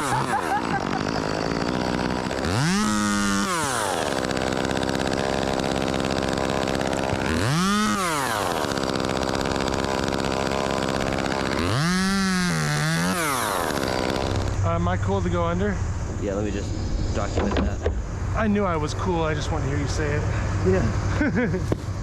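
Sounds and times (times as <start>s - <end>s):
chainsaw idling and revving: 0.0s - 14.7s.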